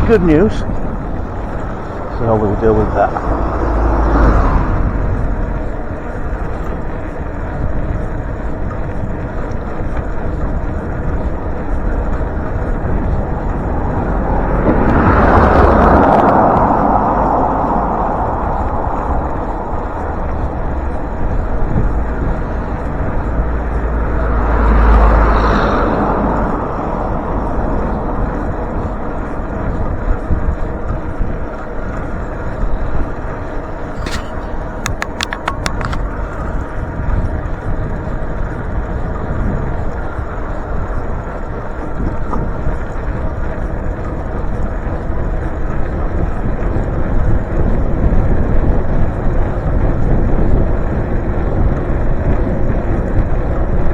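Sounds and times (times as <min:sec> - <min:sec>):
vehicle passing: 0:00.0 - 0:07.1, 0:12.0 - 0:30.8
wind on microphone: 0:00.0 - 0:53.9
sharp clicks: 0:34.0 - 0:36.2.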